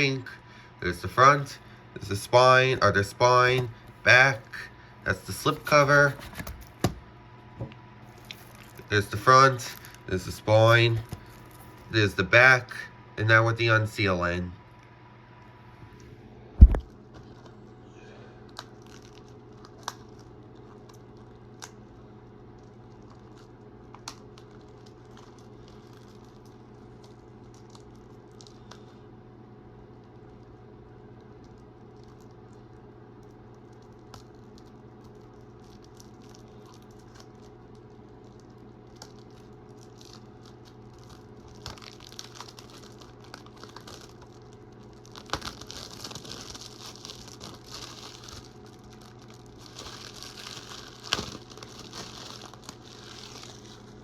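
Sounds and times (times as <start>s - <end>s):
steady low hum: 0.0s - 54.0s
plastic shrink-wrap crinkling and tearing: 8.0s - 11.9s, 18.4s - 28.9s, 31.2s - 54.0s.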